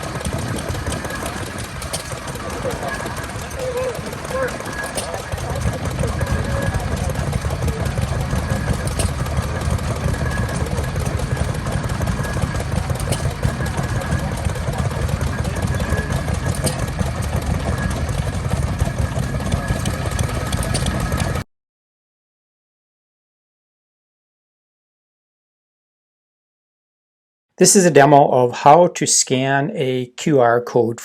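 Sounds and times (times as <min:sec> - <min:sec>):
engine rumbling: 0:00.0 - 0:21.4.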